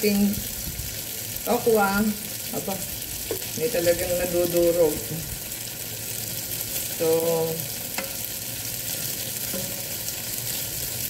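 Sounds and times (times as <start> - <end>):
tofu sizzling in hot oil: 0.0 - 11.0
spatula stirring in pan: 2.3 - 4.2, 7.6 - 11.0.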